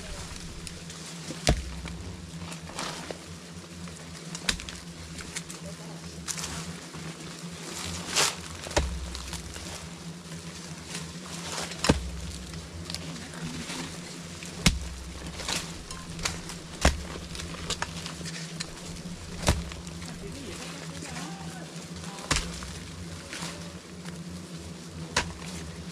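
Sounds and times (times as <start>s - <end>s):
bees buzzing: 0.0s - 25.9s
sharp knocks: 1.4s - 2.0s, 14.6s - 18.0s, 19.3s - 19.9s.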